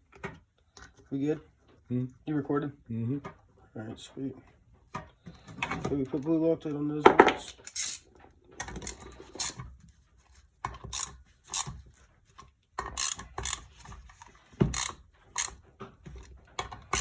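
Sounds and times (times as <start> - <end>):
ratchet wrench clicking: 7.6 - 8.0, 8.8 - 9.6, 10.9 - 11.7, 12.9 - 13.8, 14.7 - 15.6.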